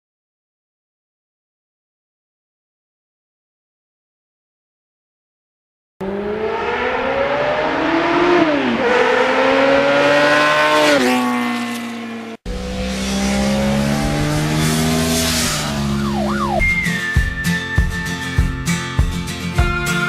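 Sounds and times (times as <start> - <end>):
motorcycle engine accelerating: 6.0 - 19.8.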